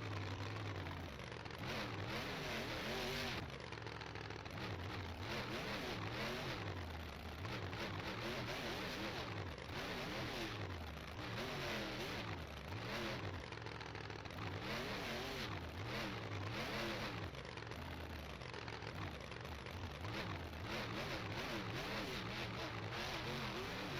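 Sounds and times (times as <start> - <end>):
truck engine revving hard: 1.6 - 3.4, 20.0 - 23.9.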